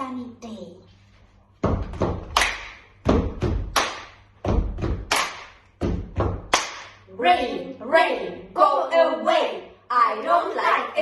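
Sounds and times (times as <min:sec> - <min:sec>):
sharp percussive thumps: 0:01.6 - 0:07.0.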